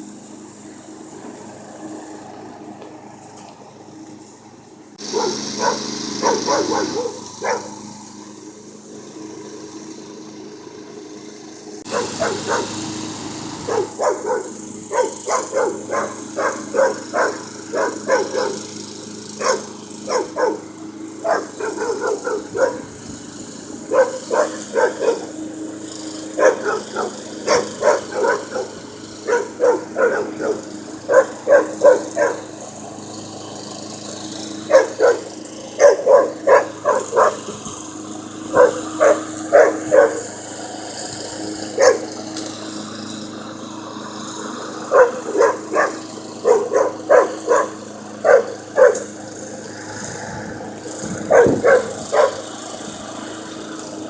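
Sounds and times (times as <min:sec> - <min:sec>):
lawn mower humming: 0:00.0 - 0:54.0
puppy barking: 0:05.0 - 0:07.8, 0:11.9 - 0:12.8, 0:13.7 - 0:18.8, 0:19.4 - 0:23.0, 0:23.9 - 0:25.4, 0:26.3 - 0:32.5, 0:34.7 - 0:37.7, 0:38.5 - 0:40.3, 0:41.7 - 0:42.1, 0:44.8 - 0:49.1, 0:51.3 - 0:52.4.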